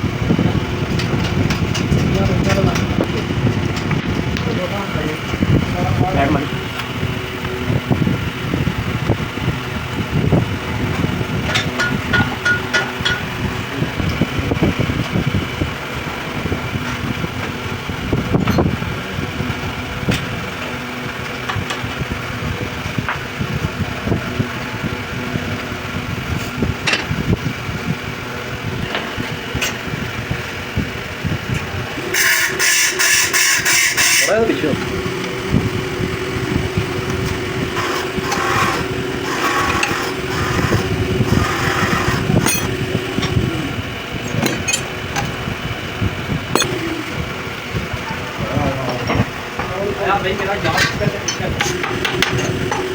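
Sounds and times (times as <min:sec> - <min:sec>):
mechanical running hum: 0:00.0 - 0:52.9
small machine motor humming: 0:30.2 - 0:52.9
sharp clicks and knocks: 0:46.5 - 0:46.9.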